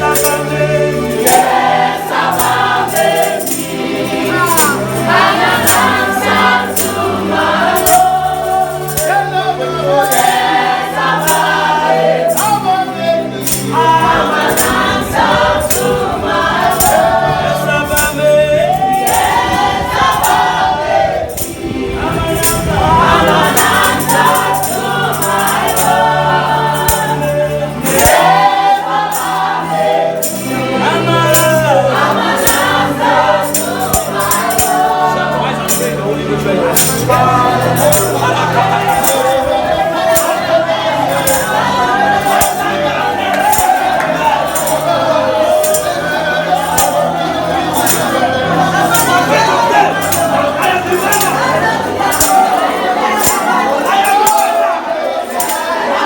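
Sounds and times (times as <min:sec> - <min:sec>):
band with bass and keyboard: 0:00.0 - 0:54.7
choir and congregation singing: 0:00.0 - 0:56.0
tambourine beats: 0:00.0 - 0:56.0.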